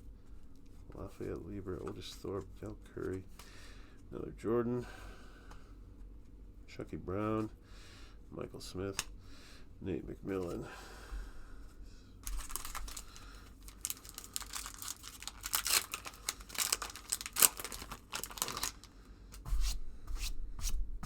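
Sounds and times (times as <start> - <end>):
card pack wrapper tearing and crinkling: 12.2 - 18.9.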